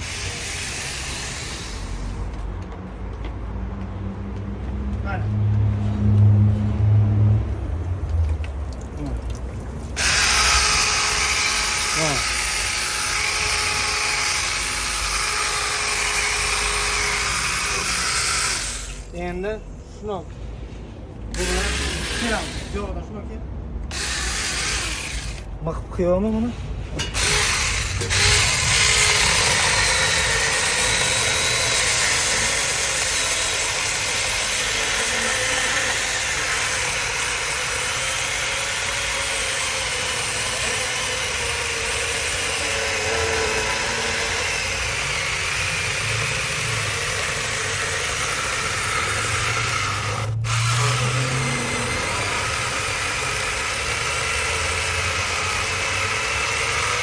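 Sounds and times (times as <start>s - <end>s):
electric chainsaw cutting wood: 0.0s - 2.4s, 10.0s - 19.1s, 21.3s - 22.9s, 23.9s - 25.5s, 27.1s - 57.0s.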